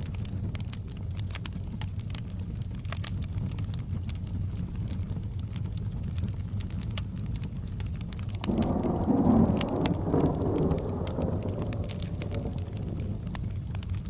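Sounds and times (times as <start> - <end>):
fireplace crackling and popping: 0.0 - 14.0
low rain rumble: 0.0 - 14.0
rolling thunder: 8.4 - 14.0.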